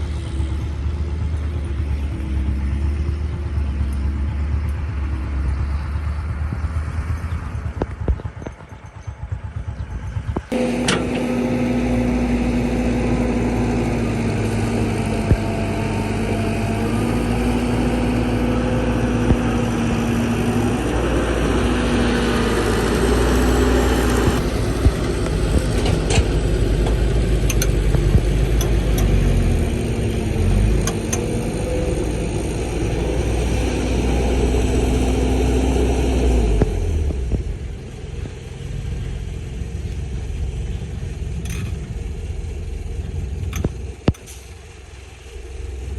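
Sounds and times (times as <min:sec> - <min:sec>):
excavator engine and hydraulics: 0:00.0 - 0:45.9
excavator metal clanks: 0:10.1 - 0:14.0, 0:24.0 - 0:32.0, 0:41.4 - 0:42.0.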